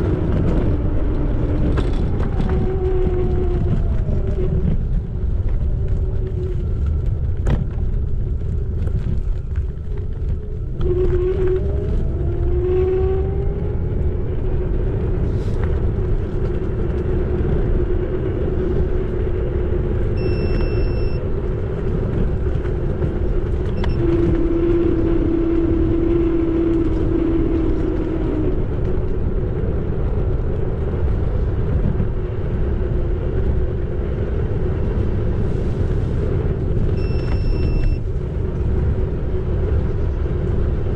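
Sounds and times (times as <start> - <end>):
wind on microphone: 0.0 - 40.9
brief high tone: 20.2 - 21.2, 37.0 - 38.0.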